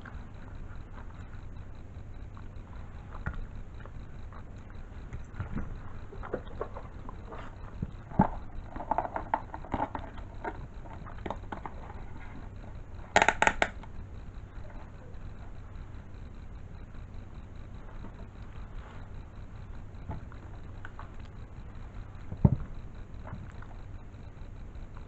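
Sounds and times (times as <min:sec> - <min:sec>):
steady low hum: 0:00.0 - 0:25.0
sharp loud clicks: 0:13.1 - 0:13.9.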